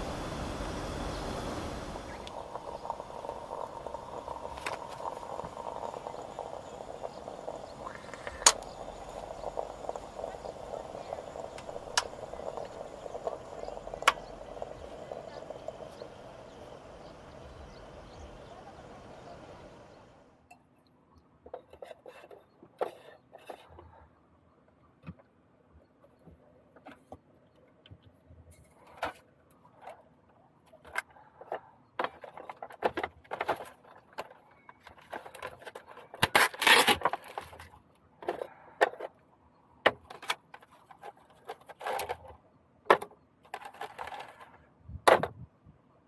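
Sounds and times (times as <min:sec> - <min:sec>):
small hard objects clicking: 0:02.2 - 0:16.4.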